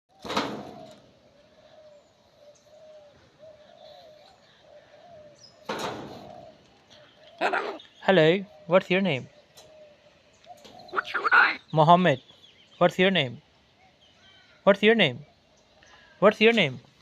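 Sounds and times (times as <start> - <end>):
bird cooing: 0.1 - 7.8, 9.4 - 11.4
loud bird call: 0.1 - 11.9.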